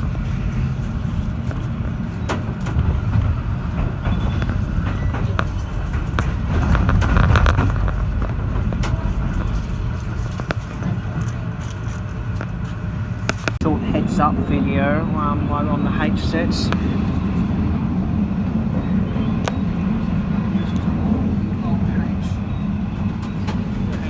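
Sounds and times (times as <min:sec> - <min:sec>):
train carriage rumbling on rails: 0:00.0 - 0:24.0
sharp clicks and rattles: 0:01.4 - 0:12.5.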